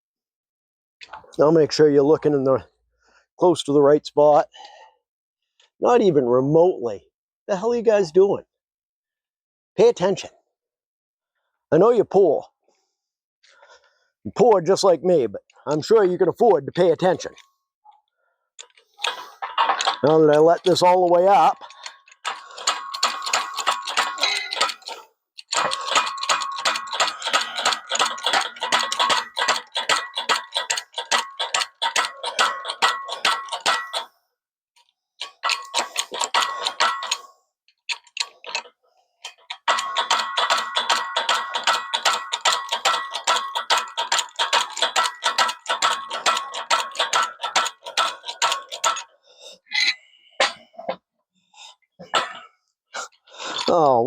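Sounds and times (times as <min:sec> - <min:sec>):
rapid metallic clicking: 0:18.6 - 0:34.1, 0:35.2 - 0:49.1.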